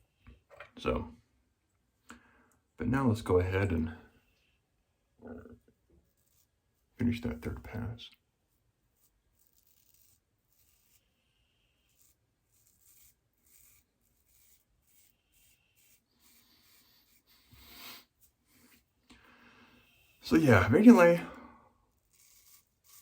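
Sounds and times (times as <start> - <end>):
razor scraping stubble: 5.2 - 7.8, 8.9 - 19.0, 19.6 - 21.3, 21.9 - 23.0.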